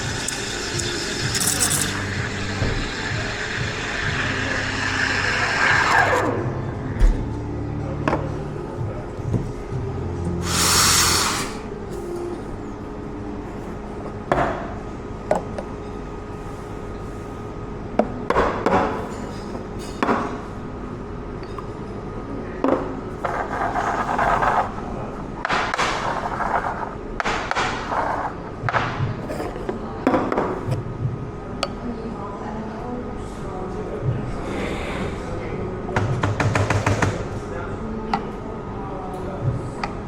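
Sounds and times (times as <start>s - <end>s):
cups and equipment clinking: 0.0s - 6.3s, 10.4s - 11.6s
steady machine hum: 0.0s - 18.2s
loud hiss: 10.4s - 11.7s.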